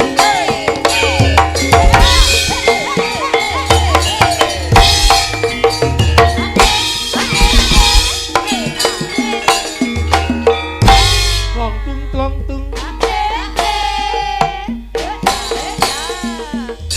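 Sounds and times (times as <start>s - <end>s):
drum kit: 0.0s - 16.9s
gamelan-style dance music: 0.0s - 16.9s
hand drums: 0.0s - 16.9s
heavy bass pulse: 1.6s - 2.6s.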